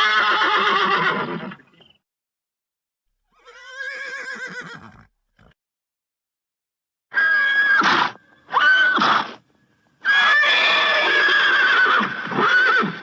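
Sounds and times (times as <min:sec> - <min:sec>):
horse whinnying: 0:00.0 - 0:01.6, 0:03.3 - 0:05.6, 0:07.1 - 0:09.4, 0:10.0 - 0:13.0.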